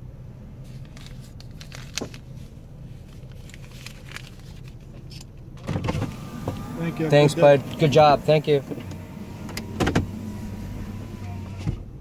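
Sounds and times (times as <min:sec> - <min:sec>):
car engine idling: 0:00.0 - 0:12.0
power window going down: 0:05.6 - 0:11.9.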